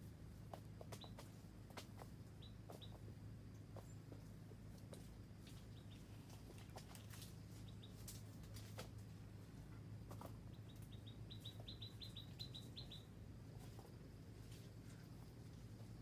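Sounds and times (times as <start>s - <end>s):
faint low hum: 0.0s - 16.0s
bird chirping: 2.4s - 3.0s, 5.7s - 6.1s, 7.6s - 8.0s, 10.5s - 13.2s.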